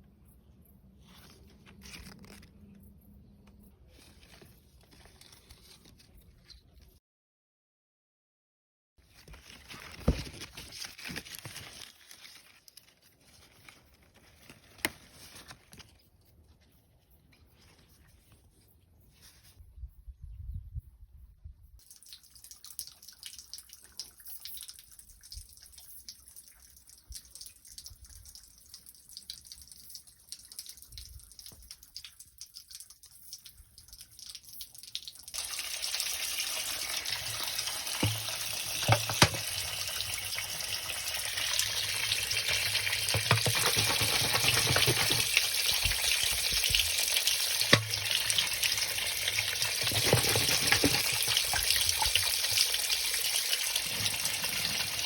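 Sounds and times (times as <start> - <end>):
running water: 21.9 - 55.0.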